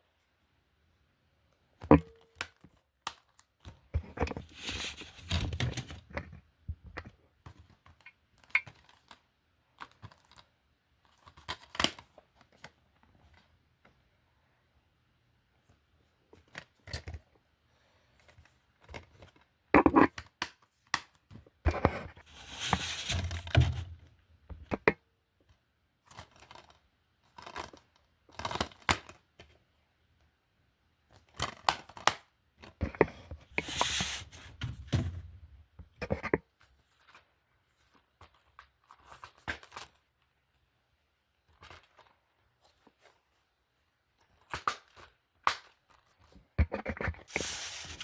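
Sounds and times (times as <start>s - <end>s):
scraping and rustling: 4.1s - 6.1s, 21.7s - 24.1s, 32.8s - 35.3s, 46.6s - 48.0s.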